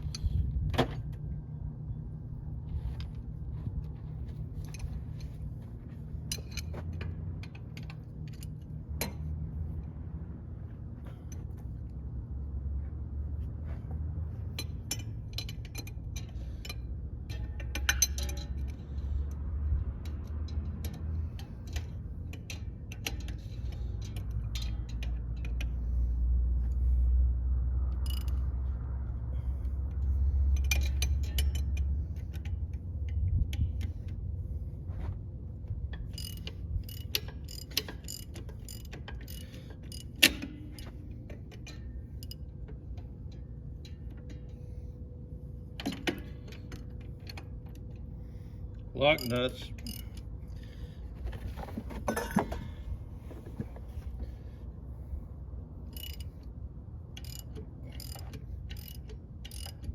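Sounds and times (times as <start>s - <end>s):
metal tools clinking: 49.0s - 53.8s
socket ratchet clicking: 57.2s - 59.9s.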